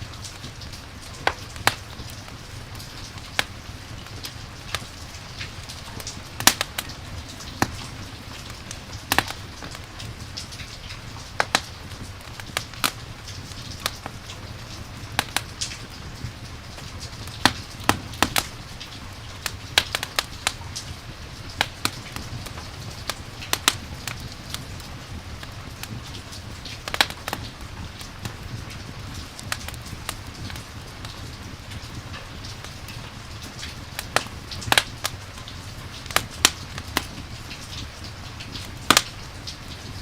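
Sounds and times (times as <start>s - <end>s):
campfire crackling: 0.0s - 40.0s
rain rushing: 0.0s - 40.0s.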